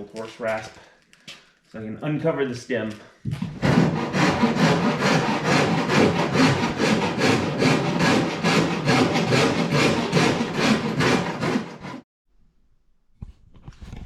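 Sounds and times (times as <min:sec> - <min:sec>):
rasp scraping wood: 0:03.4 - 0:12.0.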